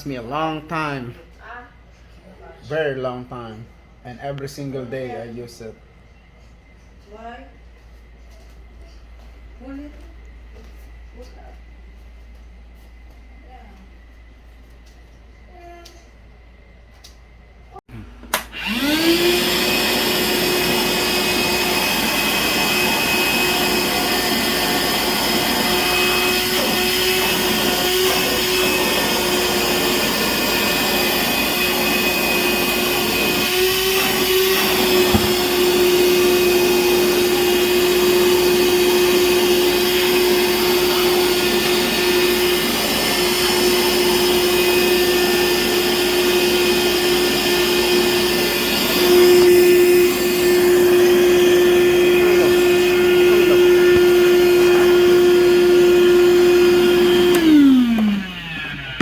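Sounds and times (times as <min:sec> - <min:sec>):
vacuum motor whining: 0:18.0 - 0:59.0
vacuum switch click: 0:18.3 - 0:18.6.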